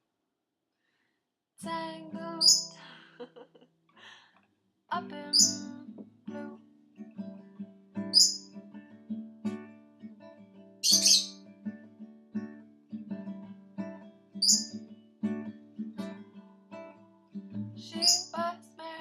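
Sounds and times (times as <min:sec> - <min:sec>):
bird chirping loudly: 0:02.4 - 0:02.7, 0:05.3 - 0:05.7, 0:08.2 - 0:08.4, 0:10.8 - 0:11.4, 0:14.4 - 0:14.7, 0:18.0 - 0:18.3.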